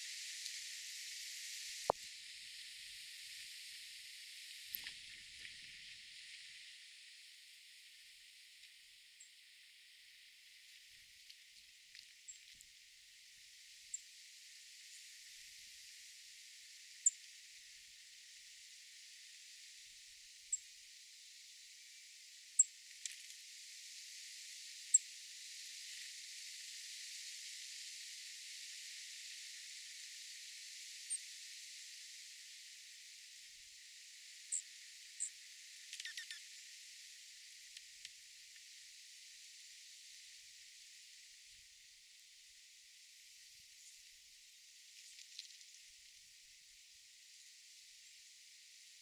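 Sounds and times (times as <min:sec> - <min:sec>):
steady outdoor hiss: 0:00.0 - 0:49.0
small birds chip calls: 0:35.9 - 0:36.6.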